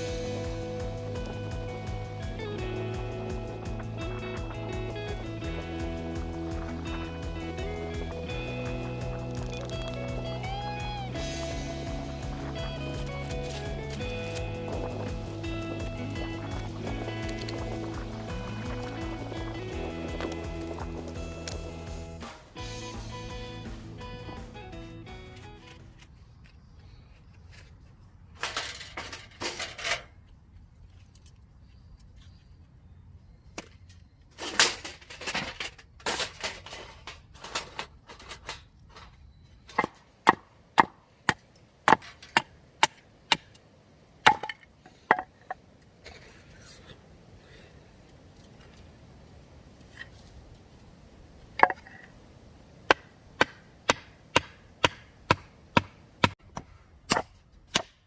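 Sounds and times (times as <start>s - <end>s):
wood splintering: 0.0s - 22.5s, 52.9s - 58.0s.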